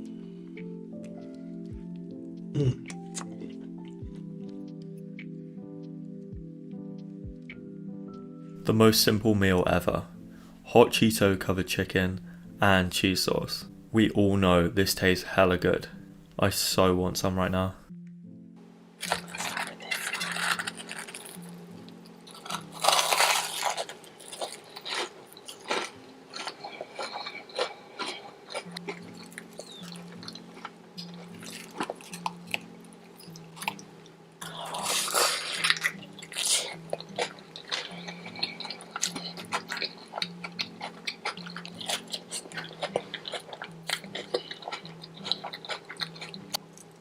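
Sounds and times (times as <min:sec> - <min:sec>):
crunchy chewing: 0:01.0 - 0:05.0, 0:19.0 - 0:47.0.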